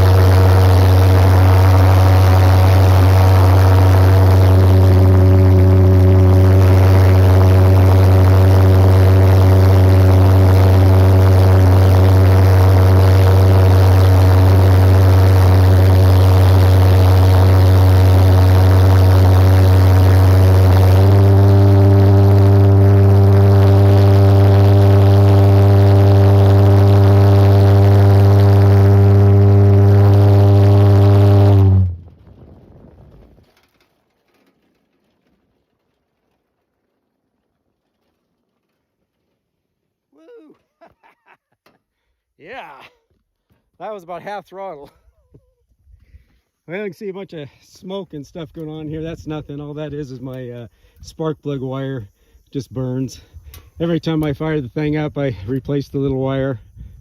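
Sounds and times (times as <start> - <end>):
go-kart jet engine droning: 0.0 - 32.2.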